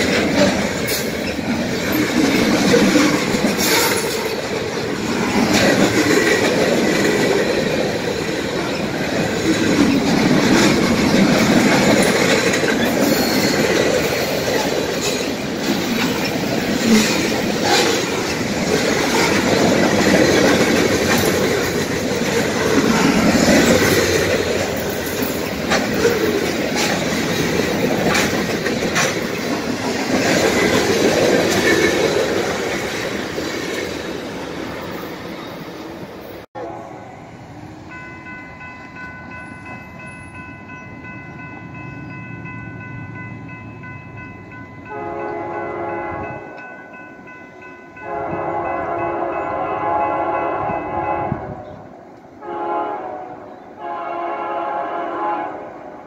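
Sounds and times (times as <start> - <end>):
wheels clicking over rail joints: 0.0 - 35.0
freight train wheels rumbling: 0.0 - 56.0.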